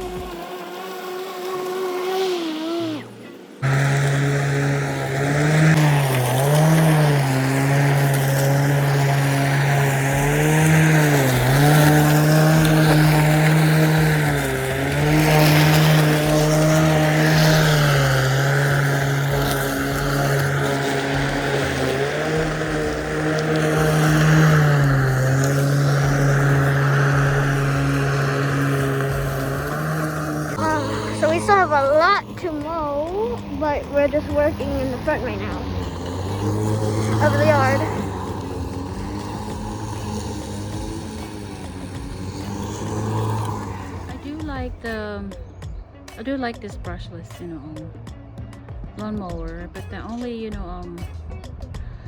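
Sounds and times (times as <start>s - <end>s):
electric lawnmower humming: 0.0s - 52.0s.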